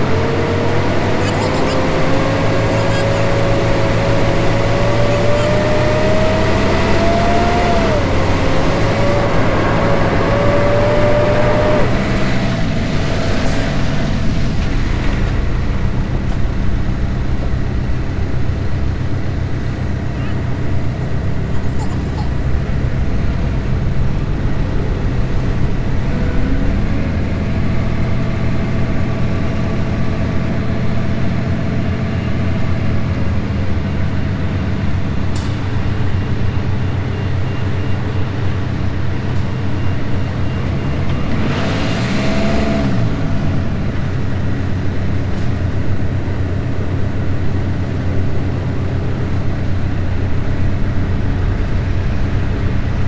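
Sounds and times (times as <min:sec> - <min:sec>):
diesel truck engine running: 0:00.0 - 0:53.0.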